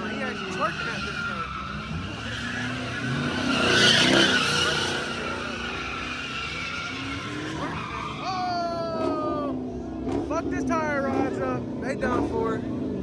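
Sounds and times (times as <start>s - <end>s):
car engine running: 0.0s - 13.0s
car tires screeching: 0.0s - 13.0s.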